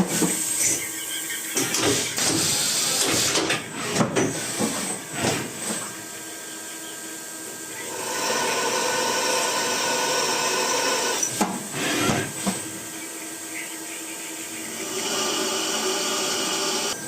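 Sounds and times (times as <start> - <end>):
machining spindle whine and hiss: 0.0 - 17.0.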